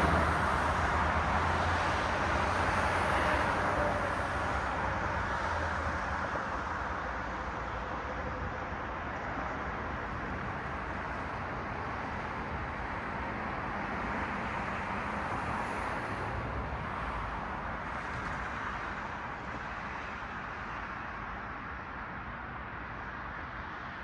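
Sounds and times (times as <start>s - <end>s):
cars passing: 0.0s - 5.0s.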